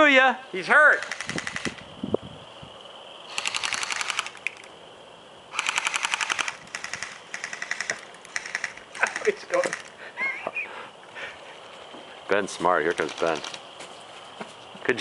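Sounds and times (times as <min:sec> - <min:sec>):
airsoft guns firing bursts: 0:00.9 - 0:01.8, 0:03.3 - 0:04.6, 0:05.5 - 0:09.9.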